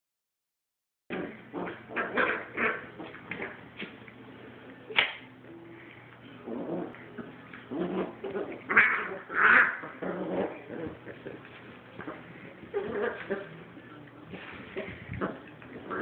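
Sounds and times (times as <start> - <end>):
puppy snarling and yelping: 1.1 - 3.6, 6.4 - 11.2.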